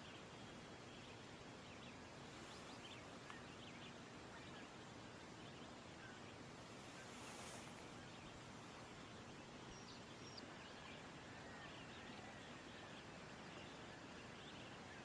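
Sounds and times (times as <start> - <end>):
low outdoor hiss: 0.0 - 15.0
short bird chirps: 2.3 - 3.4, 6.6 - 8.2.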